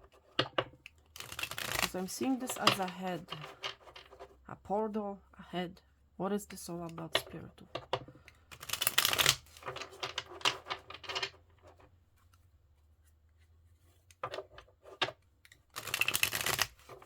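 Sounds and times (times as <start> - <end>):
cards being shuffled: 1.1 - 4.3, 8.3 - 11.3, 14.1 - 17.0.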